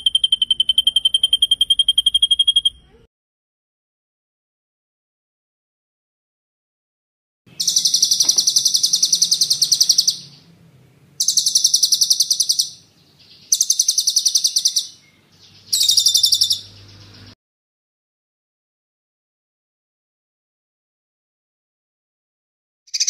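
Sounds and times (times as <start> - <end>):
songbird rapid high trill: 7.5 - 10.6, 11.2 - 17.4.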